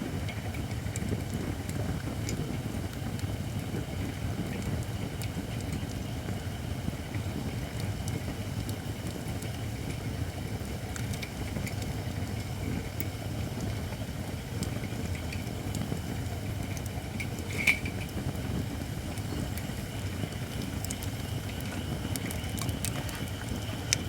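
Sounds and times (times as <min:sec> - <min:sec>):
campfire rumbling: 0:00.0 - 0:24.0
fire crackles: 0:00.0 - 0:24.0.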